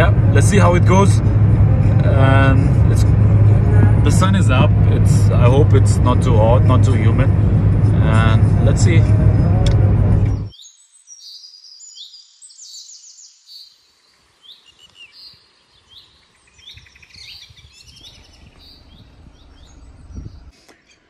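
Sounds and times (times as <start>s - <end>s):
small birds chirping: 10.3s - 21.0s
faint low rumble: 18.0s - 20.5s.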